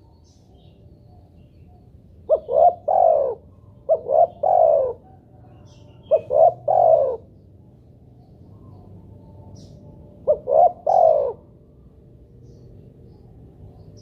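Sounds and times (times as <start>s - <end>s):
dove cooing: 2.2s - 7.6s, 8.6s - 11.6s.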